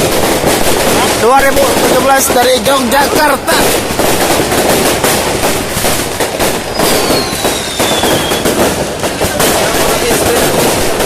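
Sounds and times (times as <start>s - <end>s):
fireworks bangs and crackles: 0.0s - 11.0s
falling firework whistle: 6.5s - 9.1s.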